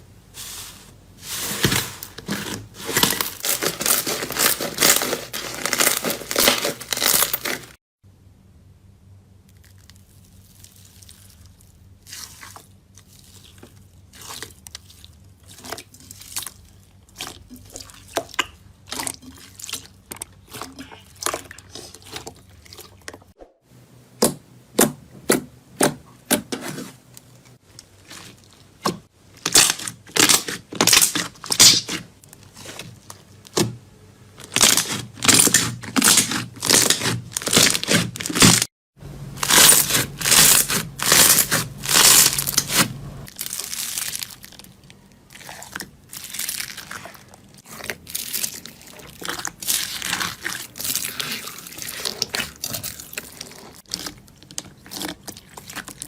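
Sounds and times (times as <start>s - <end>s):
crunchy material crackling: 0.4s - 7.8s, 34.4s - 56.0s.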